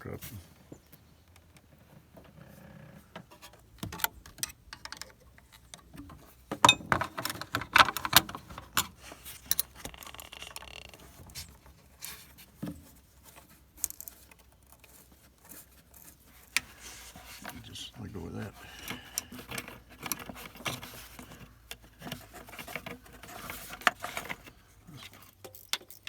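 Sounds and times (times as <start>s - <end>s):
tools clicking and knocking: 3.4s - 11.0s, 25.1s - 26.0s.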